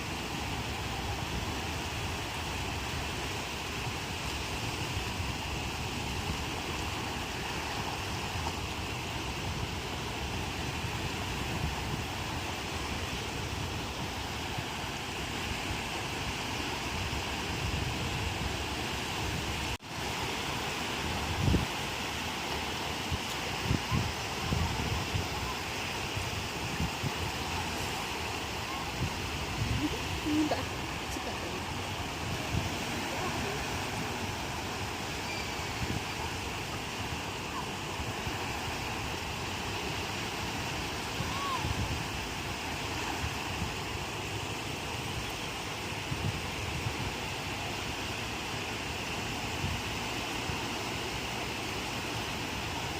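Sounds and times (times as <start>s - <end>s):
ocean waves breaking on shore: 0.0s - 52.9s
wind rumble on microphone: 0.0s - 52.9s
wind buffeting microphone: 20.8s - 22.0s, 22.9s - 48.0s.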